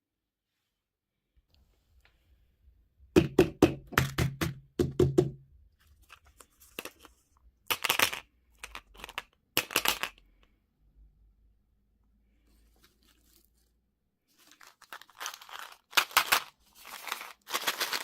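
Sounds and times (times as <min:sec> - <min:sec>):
wrapper crinkling: 0:12.5 - 0:18.0.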